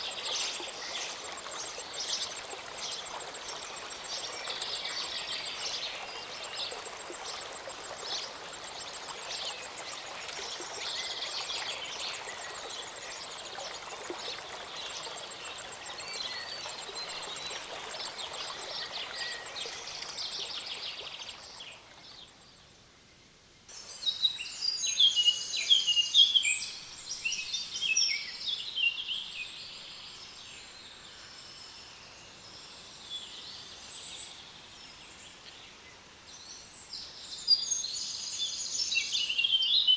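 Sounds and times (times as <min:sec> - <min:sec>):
mountain stream rushing: 0:00.0 - 0:22.2.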